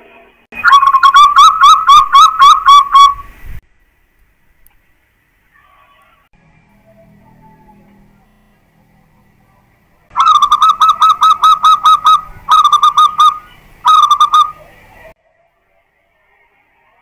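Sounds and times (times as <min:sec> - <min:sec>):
dove cooing: 0:00.6 - 0:03.2, 0:10.1 - 0:15.1.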